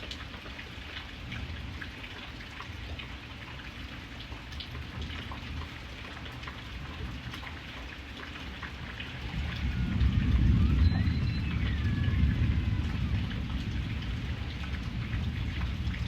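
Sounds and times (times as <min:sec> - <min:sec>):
rain drops ticking on hard surface: 0:00.0 - 0:16.0
low rumble: 0:08.6 - 0:16.0.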